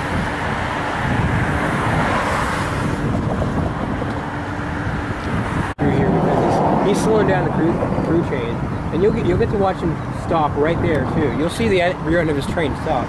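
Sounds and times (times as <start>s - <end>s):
commuter train rumbling: 5.8s - 9.0s.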